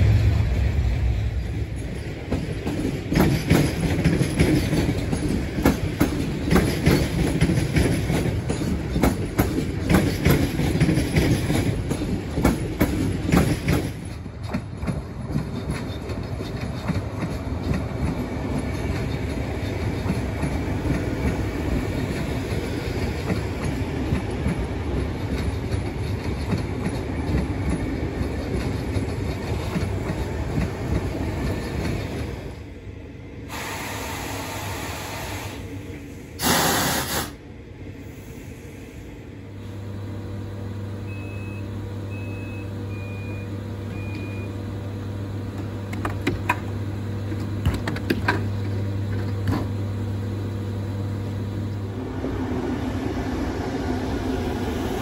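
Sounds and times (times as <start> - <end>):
low train hum: 0.0 - 55.0
train wheel and rail noise: 0.0 - 55.0
hiss: 33.4 - 39.3
loud burst of noise: 33.5 - 35.7, 36.4 - 37.4
short beeps: 41.1 - 44.5.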